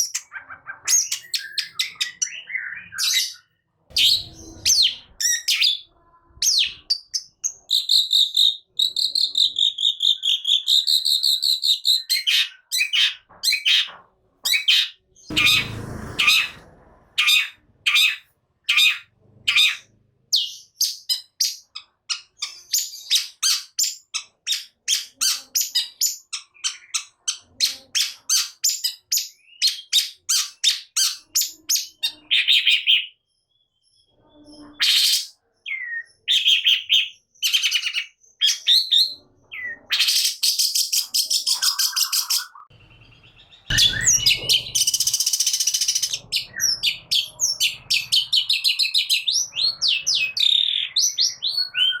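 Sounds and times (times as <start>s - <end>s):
harsh buzzy bird calls: 14.5s - 19.9s, 41.2s - 52.0s.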